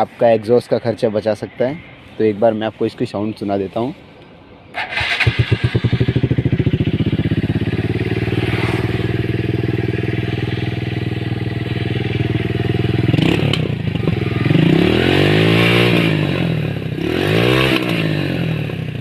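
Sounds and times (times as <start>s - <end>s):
motorcycle engine idling and revving: 4.8s - 19.0s.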